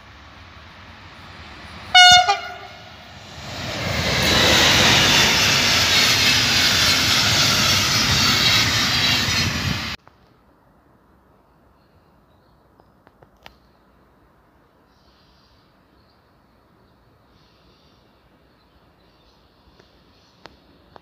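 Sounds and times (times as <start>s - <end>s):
train passing with rushing rumble: 0.0s - 10.0s
train horn blast: 1.9s - 3.1s.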